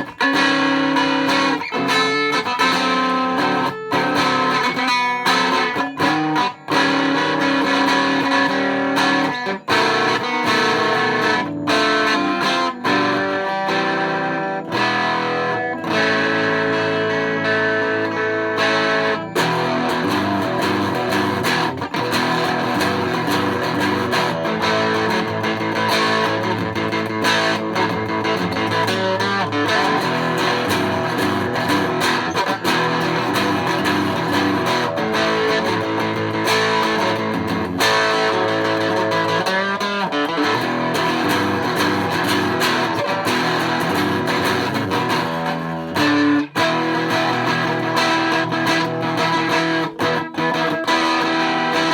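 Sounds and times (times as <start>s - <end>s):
electric guitar playing: 0.0s - 51.9s.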